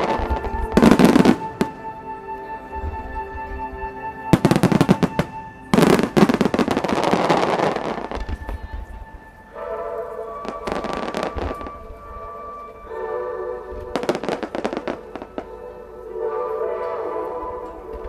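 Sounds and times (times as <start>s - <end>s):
fireworks bursting with sharp cracks: 0.0s - 2.2s, 4.3s - 12.7s, 13.8s - 15.6s
fireworks crackling: 0.0s - 3.2s, 3.9s - 18.0s
music: 0.0s - 18.0s.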